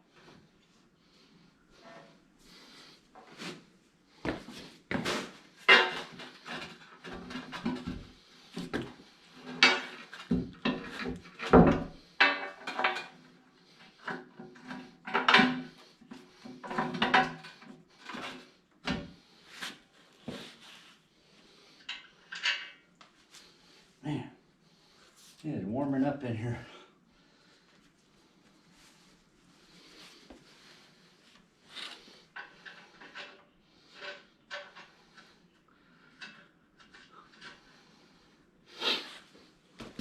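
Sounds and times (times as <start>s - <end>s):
metal tools clunking and scraping: 4.9s - 13.3s, 16.4s - 19.2s, 21.8s - 22.9s, 31.7s - 35.3s.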